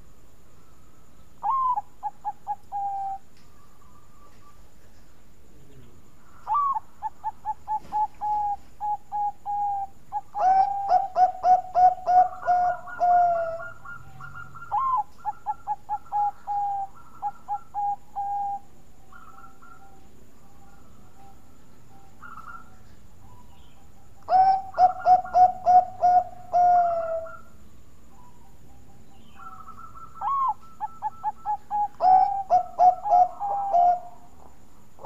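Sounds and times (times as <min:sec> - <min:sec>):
dove cooing: 0:01.4 - 0:05.0, 0:05.8 - 0:35.0.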